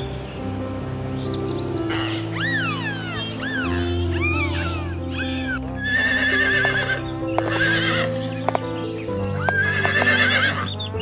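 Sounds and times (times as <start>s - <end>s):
background music: 0.0s - 11.0s
dolphin whistle: 1.9s - 8.1s
horse neighing: 2.0s - 8.2s, 9.4s - 10.7s.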